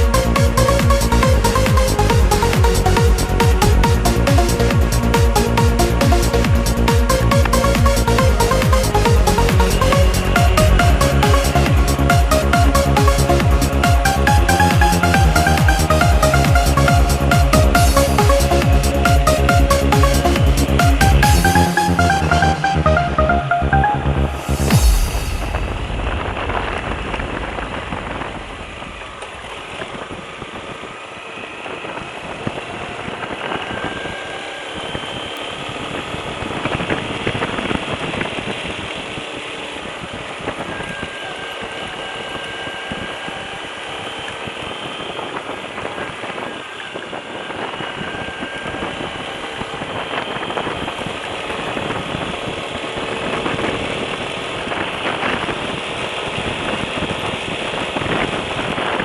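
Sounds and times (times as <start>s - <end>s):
motorcycle engine running: 0.0s - 22.4s
wind noise on microphone: 24.4s - 59.0s.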